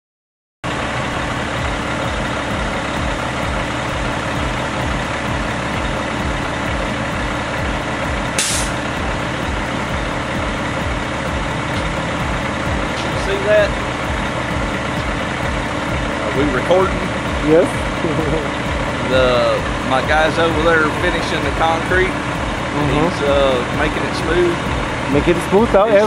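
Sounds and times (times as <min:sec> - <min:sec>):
diesel truck engine idling: 0:00.6 - 0:26.0
brief high hiss: 0:08.4 - 0:08.8.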